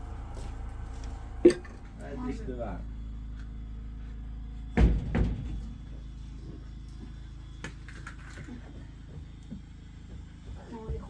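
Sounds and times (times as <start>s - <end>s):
steady low rumble: 0.0s - 7.6s.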